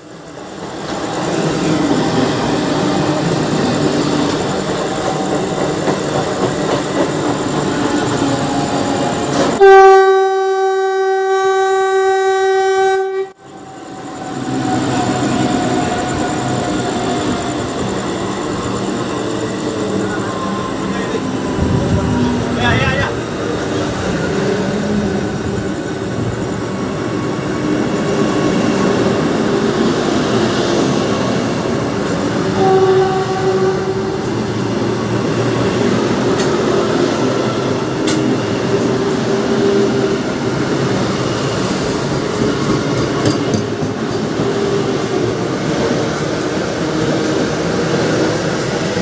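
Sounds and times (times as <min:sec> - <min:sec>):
train rumbling on rails: 0:00.0 - 0:49.0
high squeal: 0:13.4 - 0:42.2.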